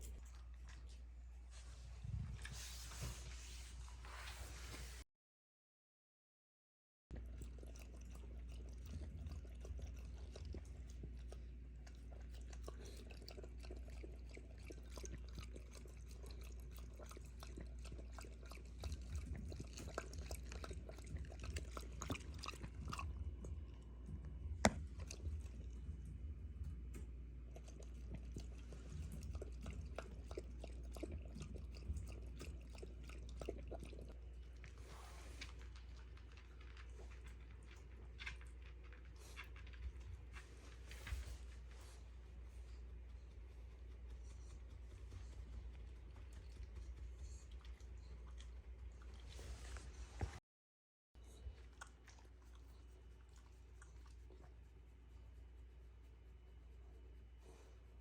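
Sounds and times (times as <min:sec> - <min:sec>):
low steady hum: 0:00.0 - 0:05.0, 0:07.1 - 0:50.4, 0:51.2 - 0:58.0
dog chewing and gnawing: 0:07.1 - 0:34.8, 0:51.2 - 0:54.5.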